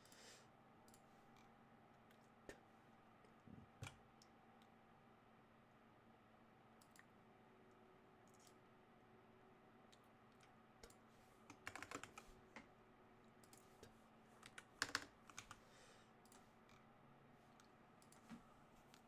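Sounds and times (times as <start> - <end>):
faint steady hum: 0.0 - 19.0
faint keyboard typing: 0.8 - 4.8, 6.8 - 7.2, 9.9 - 16.9, 17.5 - 19.0.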